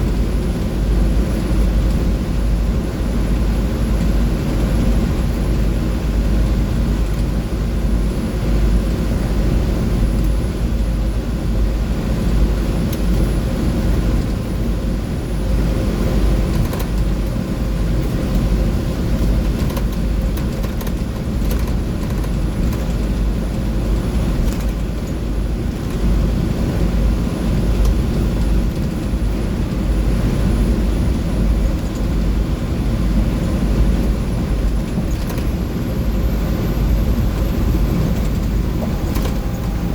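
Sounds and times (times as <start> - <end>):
diesel bus engine rumble: 0.0 - 39.9
road noise: 18.0 - 39.9.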